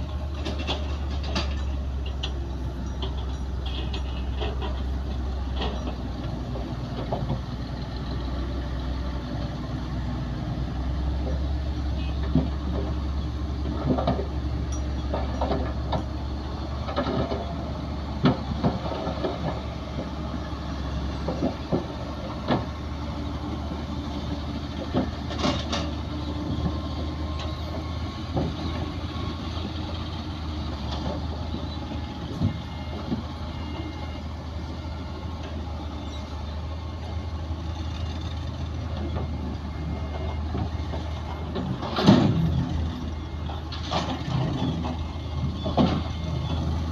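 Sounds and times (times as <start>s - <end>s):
diesel machinery engine rumble: 0.0s - 46.9s
metal clanks and knocks: 0.1s - 7.6s, 11.2s - 17.6s, 24.7s - 28.8s, 40.2s - 46.3s.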